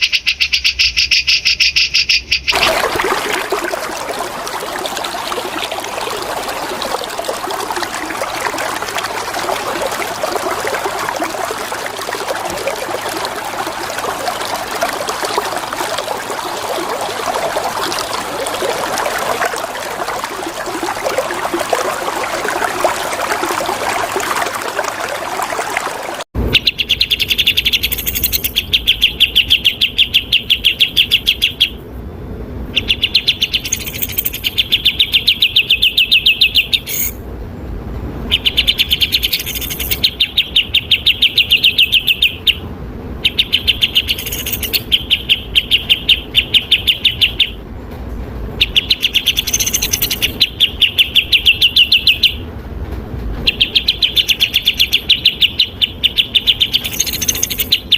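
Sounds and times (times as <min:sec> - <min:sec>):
running water: 0:02.5 - 0:26.3, 0:33.5 - 0:37.2, 0:38.3 - 0:42.6, 0:43.3 - 0:47.0, 0:48.8 - 0:52.4, 0:55.9 - 0:57.9.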